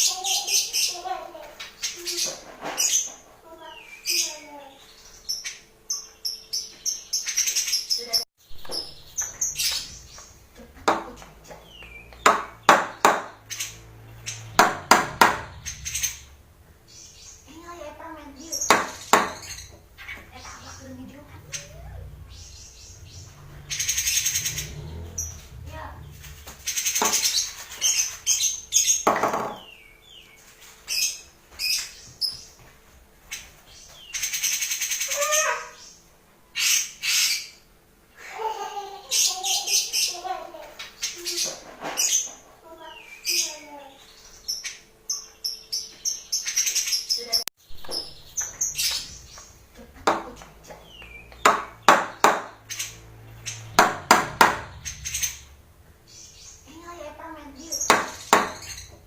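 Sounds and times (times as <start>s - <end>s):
bird giving harsh rasping calls: 11.2s - 29.1s.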